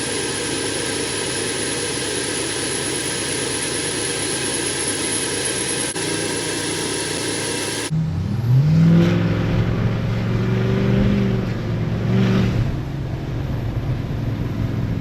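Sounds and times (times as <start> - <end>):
turbo hiss: 0.0 - 7.9
diesel engine running: 0.0 - 8.3.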